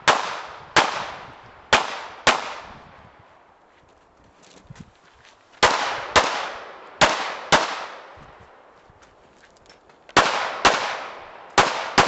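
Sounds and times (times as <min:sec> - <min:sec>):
pistol shots echoing: 0:00.0 - 0:02.7, 0:05.6 - 0:08.1, 0:10.2 - 0:12.0.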